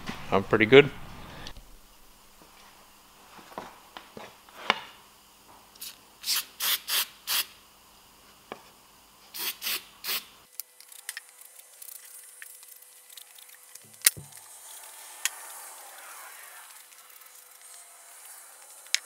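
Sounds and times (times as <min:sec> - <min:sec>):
spray paint can hissing: 0:05.8 - 0:07.6, 0:09.3 - 0:10.3, 0:11.8 - 0:19.0.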